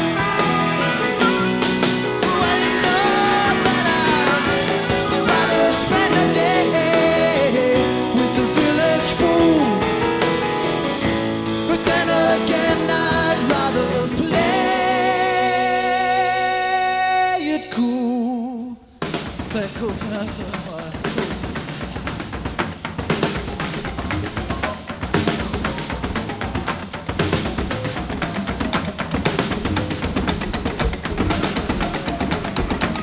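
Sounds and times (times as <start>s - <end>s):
rock band playing live: 0.0s - 16.7s, 19.1s - 33.0s
person singing: 0.0s - 18.9s.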